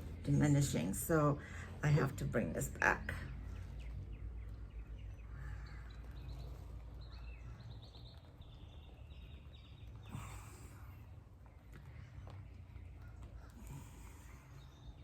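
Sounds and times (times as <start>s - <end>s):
bird chirps: 3.0s - 15.0s.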